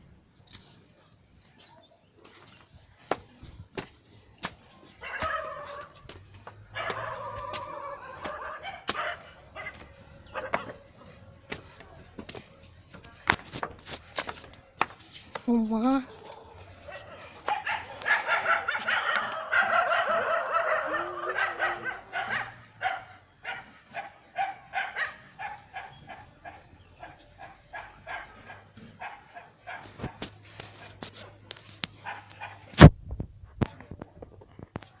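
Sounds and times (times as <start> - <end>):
dog barking: 5.0 - 6.1, 6.7 - 10.8, 16.1 - 30.2, 32.0 - 32.7.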